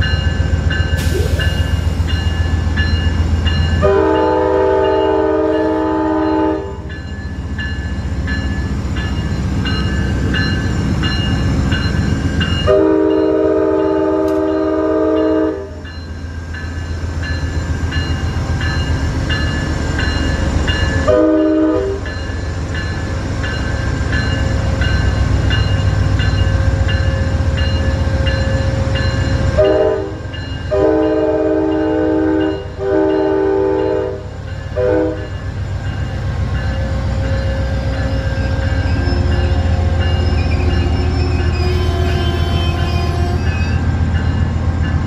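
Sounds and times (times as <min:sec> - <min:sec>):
diesel locomotive rumbling past: 0:00.0 - 0:45.0
train air horn blasts: 0:03.8 - 0:06.9, 0:12.6 - 0:15.8, 0:21.1 - 0:22.0, 0:29.6 - 0:35.3, 0:41.6 - 0:43.8.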